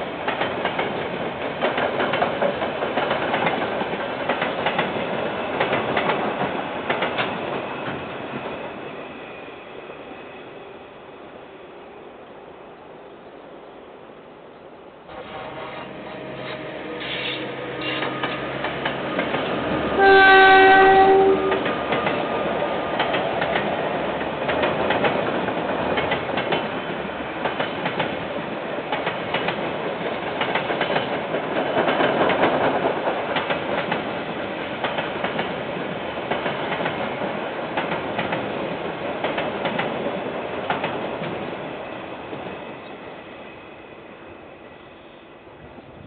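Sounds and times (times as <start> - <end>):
train wagons rumbling over rails: 0.0 - 10.0, 15.1 - 43.5
locomotive horn: 15.1 - 18.6, 19.9 - 21.7.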